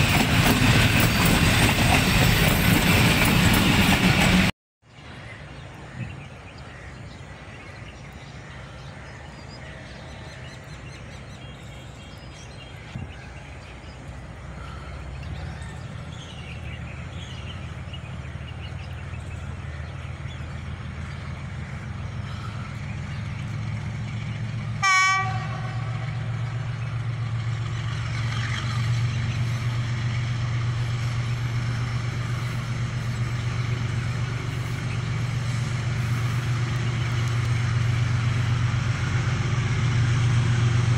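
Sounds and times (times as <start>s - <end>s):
diesel locomotive engine drone: 0.0s - 40.9s
locomotive horn blast: 24.8s - 26.4s.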